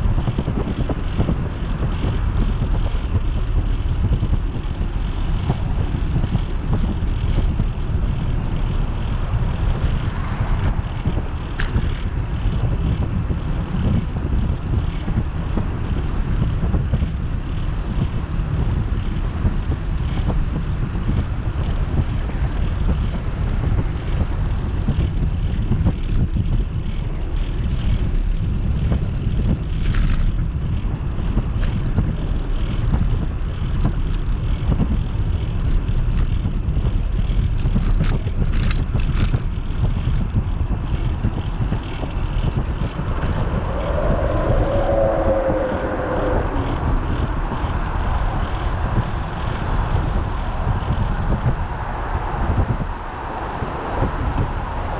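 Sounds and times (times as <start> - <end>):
wind buffeting microphone: 0.0 - 54.9
wavering pitched sound: 42.5 - 48.2.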